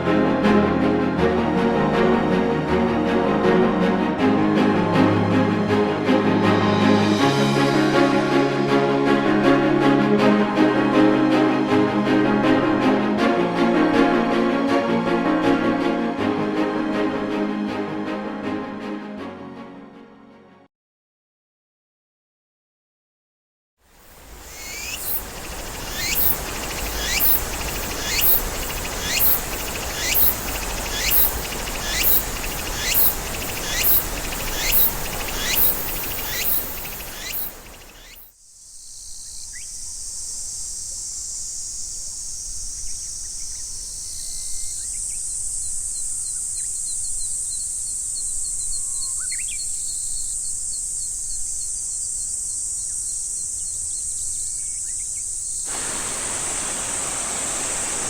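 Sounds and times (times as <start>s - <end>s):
steady rushing noise: 24.0s - 38.2s, 55.7s - 58.0s
high-pitched insect drone: 24.0s - 45.6s, 55.6s - 58.0s
faint bird chirps: 24.0s - 58.0s.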